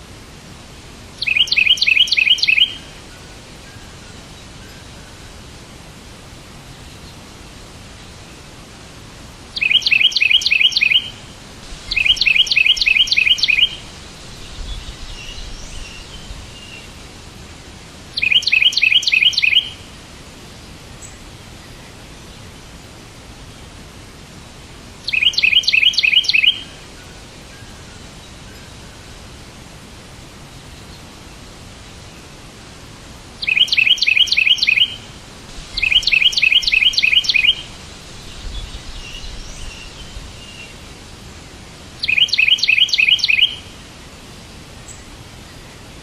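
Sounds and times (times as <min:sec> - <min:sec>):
steady hiss: 0:00.0 - 0:46.0
bird chirping rapidly: 0:01.2 - 0:02.8, 0:09.6 - 0:11.2, 0:11.9 - 0:13.8, 0:18.2 - 0:19.8, 0:25.1 - 0:26.6, 0:33.4 - 0:35.1, 0:35.7 - 0:40.7, 0:42.0 - 0:43.7.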